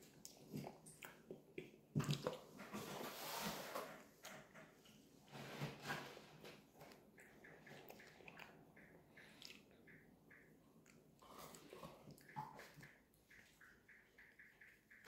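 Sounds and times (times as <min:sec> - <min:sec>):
faint chewing and mouth clicks: 0:00.0 - 0:02.7, 0:06.2 - 0:15.0.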